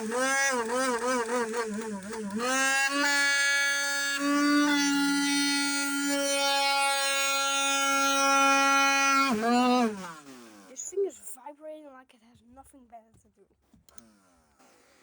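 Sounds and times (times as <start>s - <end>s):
handheld vacuum cleaner whine: 0.0s - 10.9s.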